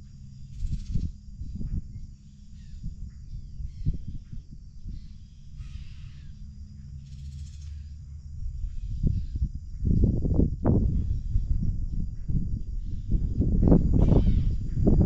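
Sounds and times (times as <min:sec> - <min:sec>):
steady low rumble: 0:00.0 - 0:15.0
harsh crow-like bird calls: 0:05.0 - 0:08.0, 0:14.0 - 0:14.7.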